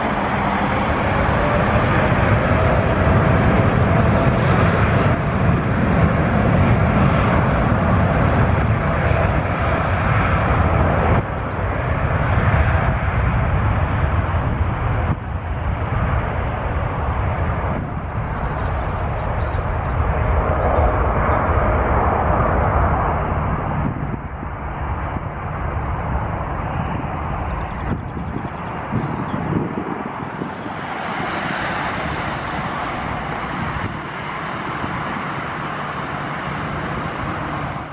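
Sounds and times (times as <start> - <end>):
jet engines at takeoff: 0.0 - 37.9
wind on microphone: 0.0 - 37.9.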